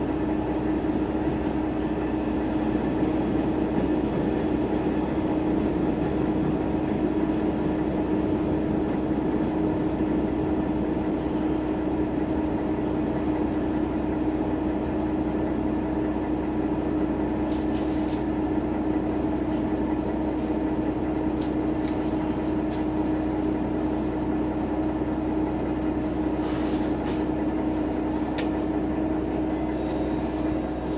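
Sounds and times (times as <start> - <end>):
diesel railcar drone: 0.0 - 30.9
faint high squeaks: 25.4 - 27.2.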